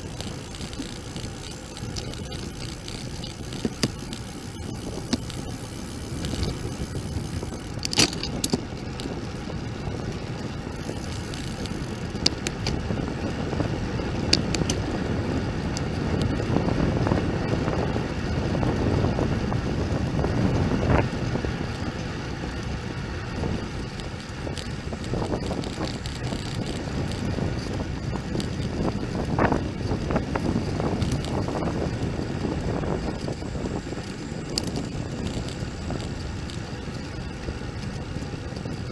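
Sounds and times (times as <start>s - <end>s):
sharp clicks: 0.0s - 9.1s, 10.8s - 12.8s, 14.2s - 14.9s, 23.9s - 28.7s, 33.2s - 37.0s
road noise: 0.0s - 38.9s
wind buffeting microphone: 0.0s - 38.9s.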